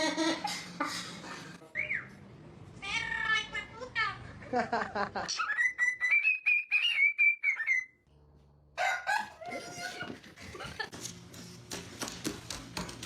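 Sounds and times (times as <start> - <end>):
parrot whistled call: 5.4 - 8.0.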